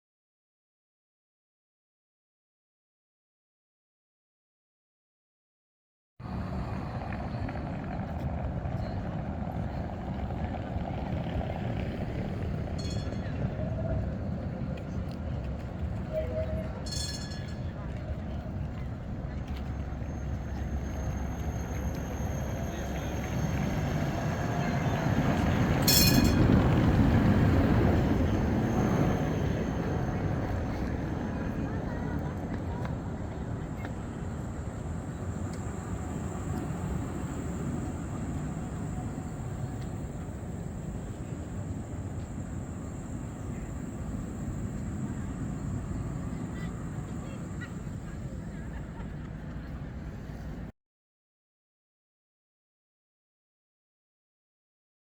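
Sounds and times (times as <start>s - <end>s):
tram rumbling on rails: 6.2s - 50.7s
faint high whine: 15.5s - 50.7s.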